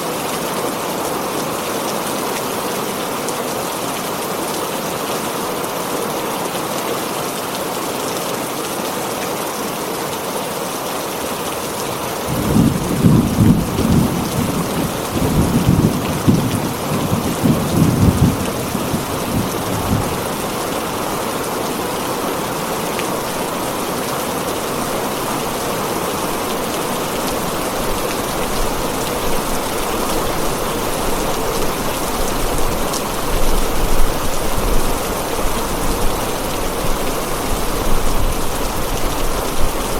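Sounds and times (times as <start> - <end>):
heavy rain on a tin roof: 0.0 - 39.9
rolling thunder: 12.3 - 20.6.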